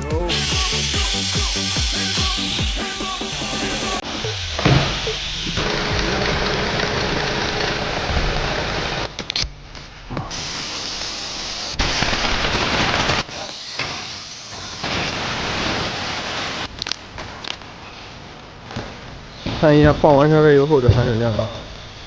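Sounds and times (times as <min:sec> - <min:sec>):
loud steady hiss: 0:00.0 - 0:04.0, 0:10.3 - 0:16.8.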